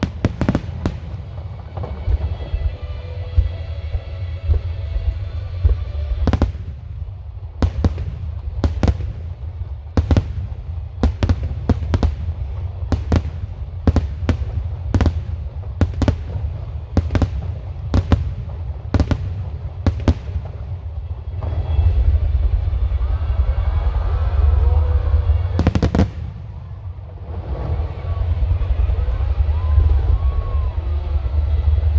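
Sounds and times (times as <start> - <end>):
firework shells bursting: 0.0 - 1.4, 6.3 - 7.0, 7.6 - 20.6, 25.6 - 26.6
steady low rumble: 0.0 - 30.2.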